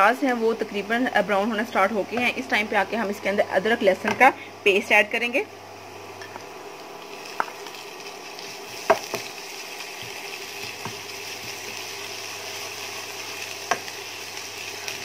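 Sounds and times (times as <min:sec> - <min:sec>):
onions sizzling in oil: 0:05.6 - 0:15.0.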